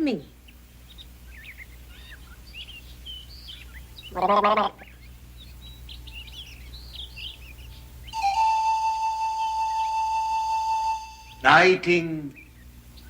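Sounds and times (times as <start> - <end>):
songbird chirping: 0.0 - 13.0
man imitating bird call: 4.1 - 4.9, 8.2 - 12.4
flute-like note: 8.2 - 11.8.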